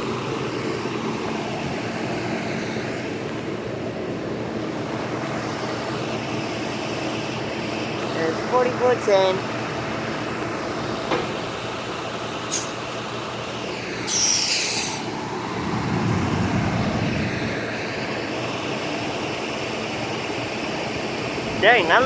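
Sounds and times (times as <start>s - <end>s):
bus engine rumble: 0.0s - 22.0s
air brakes hissing: 12.4s - 13.1s, 14.0s - 15.2s
wind noise: 15.3s - 17.8s.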